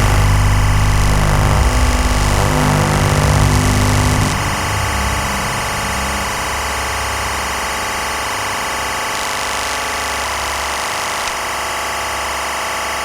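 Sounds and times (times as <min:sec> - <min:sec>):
deep bass hum: 0:00.0 - 0:08.9
electronic drone: 0:00.0 - 0:12.4.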